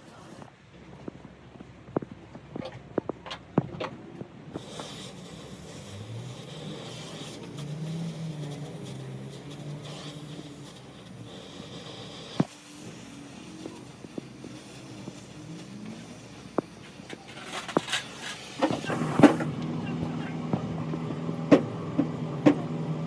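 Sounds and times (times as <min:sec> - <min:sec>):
vehicle engine running: 0:04.6 - 0:23.0.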